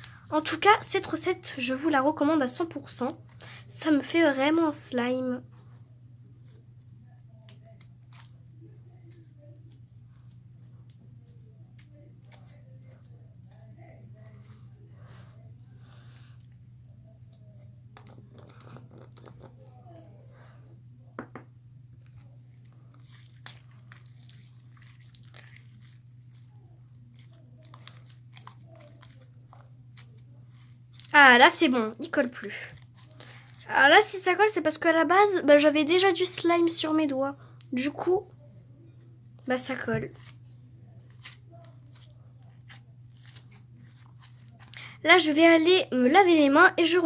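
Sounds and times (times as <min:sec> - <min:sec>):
steady low hum: 0:00.0 - 0:47.0
sticky slime crackles: 0:02.4 - 0:20.2, 0:22.0 - 0:34.6, 0:39.5 - 0:45.8.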